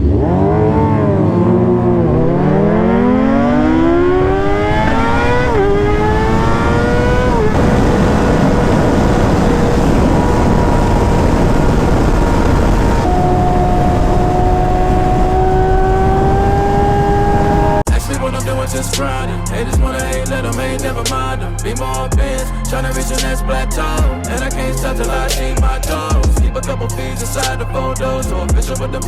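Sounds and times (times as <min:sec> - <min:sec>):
motorcycle engine accelerating: 0:00.0 - 0:18.3
wind rushing: 0:00.7 - 0:23.0.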